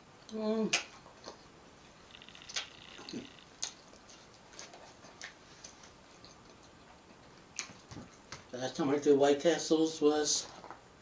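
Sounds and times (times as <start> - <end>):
wet mouth clicks and smacks: 2.1 - 6.8
person chewing food: 2.1 - 8.4.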